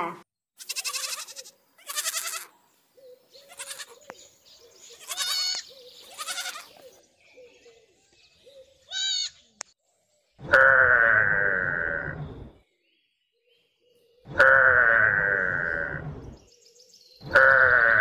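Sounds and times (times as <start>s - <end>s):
goats bleating: 0.6s - 2.5s, 3.4s - 4.0s, 4.9s - 6.8s, 8.9s - 9.4s, 17.3s - 18.0s.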